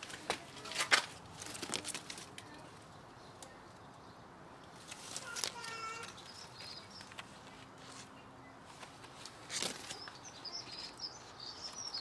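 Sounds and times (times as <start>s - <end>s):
small birds chirping faintly: 2.3s - 12.0s.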